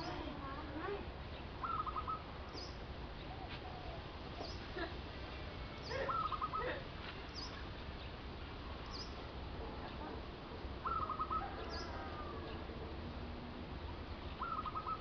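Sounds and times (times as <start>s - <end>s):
low background noise: 0.0s - 15.0s
bird chirping: 1.2s - 10.1s, 10.8s - 12.7s, 13.9s - 15.0s.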